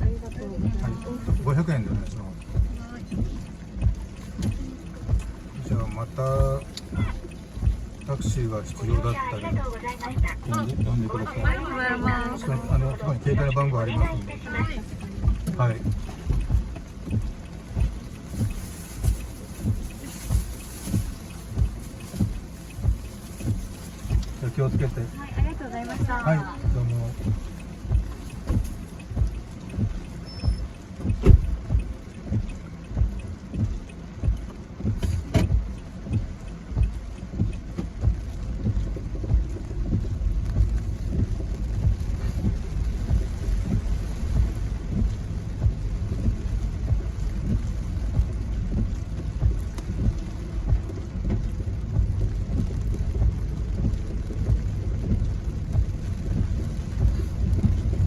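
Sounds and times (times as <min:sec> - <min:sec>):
car road and engine rumble: 0:00.0 - 0:58.0
regular thump: 0:13.3 - 0:58.0.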